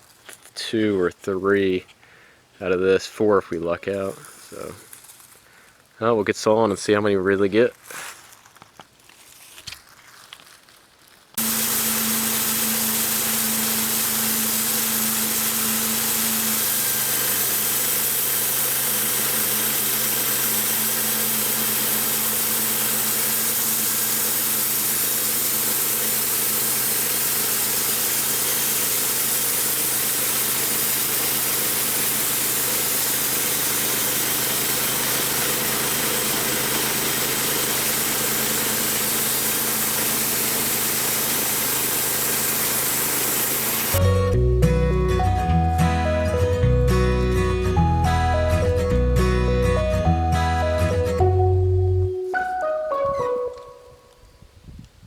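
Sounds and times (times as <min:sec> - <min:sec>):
saw hissing through log: 0:11.4 - 0:44.0
sawmill engine running: 0:11.4 - 0:52.8.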